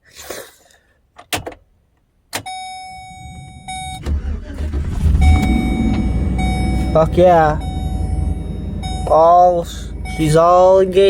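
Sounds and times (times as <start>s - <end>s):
electronic warning tone: 2.5s - 11.0s
van engine starting and rumbling: 2.5s - 11.0s.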